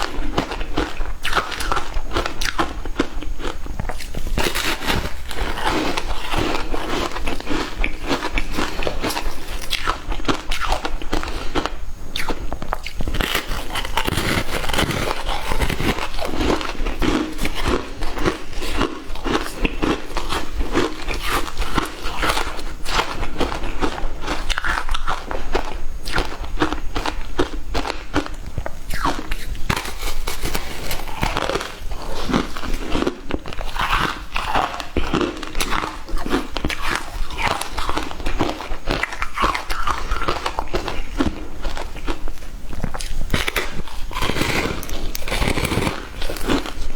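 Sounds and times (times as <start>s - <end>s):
ice cubes being crunched: 43.3s - 46.8s.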